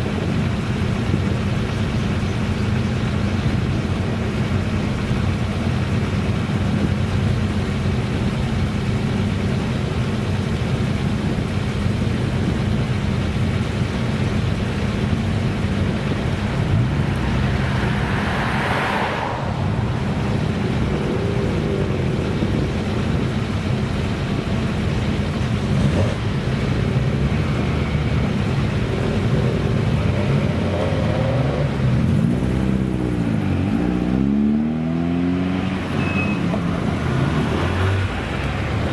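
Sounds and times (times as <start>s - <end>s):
car engine idling: 0.0s - 34.2s
car passing close by: 16.2s - 22.0s.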